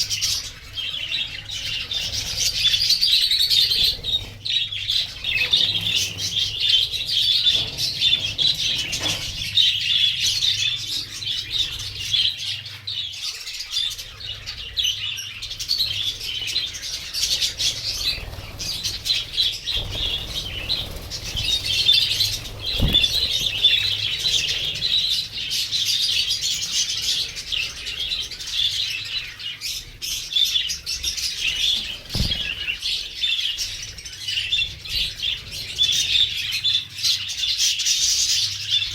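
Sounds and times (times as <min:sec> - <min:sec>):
budgerigars chattering and warbling: 0:00.0 - 0:38.9
dull thumps: 0:19.8 - 0:24.4.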